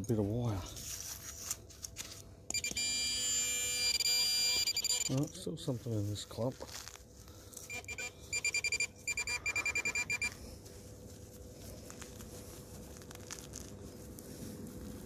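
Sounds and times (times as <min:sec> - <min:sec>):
metal detector beeping rapidly: 0:02.5 - 0:05.3, 0:07.7 - 0:10.4.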